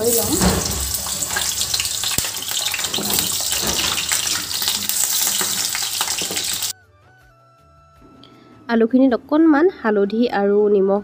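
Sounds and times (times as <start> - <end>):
potatoes sizzling in hot oil: 0.0 - 6.7
spatula turning food in pan: 0.0 - 6.7
faint soft music: 6.7 - 11.0.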